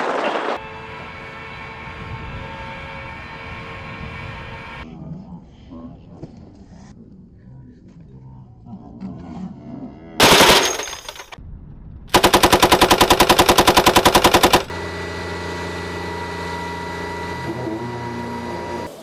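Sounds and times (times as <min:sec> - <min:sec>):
gatling gun firing: 0:10.2 - 0:11.4, 0:12.1 - 0:14.7.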